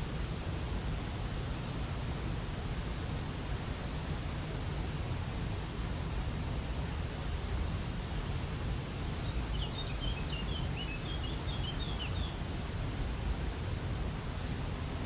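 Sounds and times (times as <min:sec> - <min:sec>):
bird chirping: 0:09.1 - 0:12.4.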